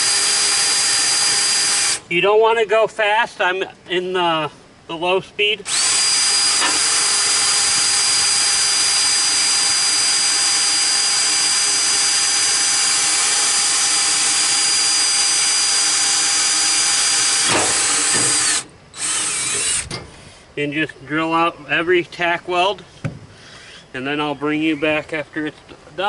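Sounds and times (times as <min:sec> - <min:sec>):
electric drill whining: 0:00.0 - 0:02.0, 0:05.7 - 0:20.0.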